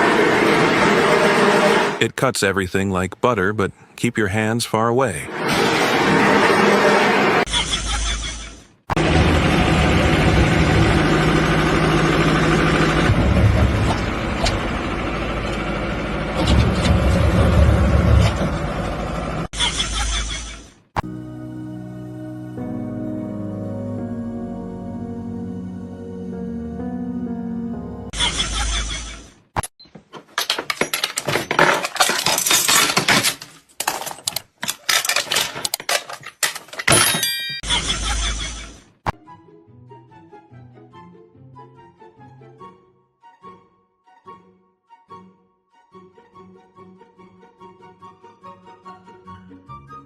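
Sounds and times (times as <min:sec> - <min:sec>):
engine running: 0:00.0 - 0:02.0, 0:09.0 - 0:20.6
hard objects clattering: 0:30.1 - 0:37.6.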